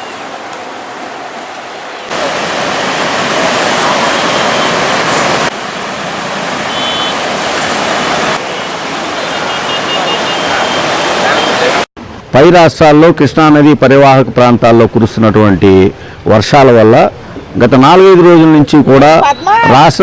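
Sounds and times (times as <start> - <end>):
steady rushing noise: 0.0 - 13.4.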